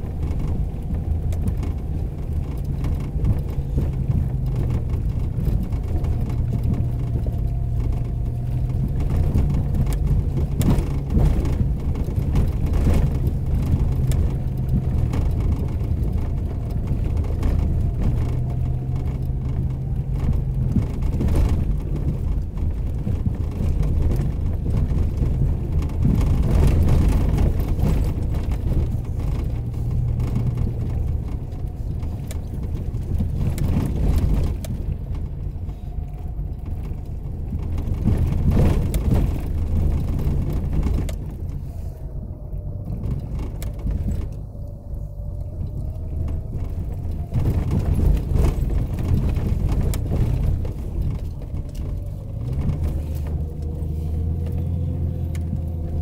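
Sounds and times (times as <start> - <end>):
knocks and rattles: 0.0 - 41.7, 45.4 - 56.0
engine running at low revs: 0.0 - 56.0.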